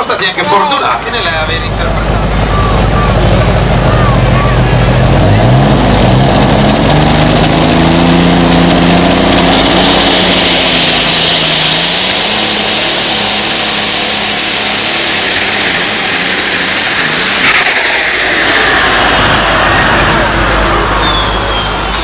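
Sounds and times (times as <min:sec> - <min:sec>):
tractor engine running hard: 0:00.0 - 0:22.0
high whine rising in pitch: 0:01.2 - 0:22.0.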